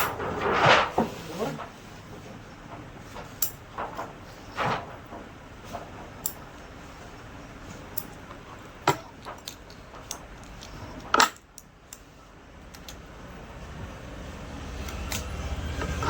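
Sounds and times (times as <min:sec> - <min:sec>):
metal parts clicking and clinking: 0:03.2 - 0:03.8, 0:06.2 - 0:06.6, 0:07.9 - 0:12.1.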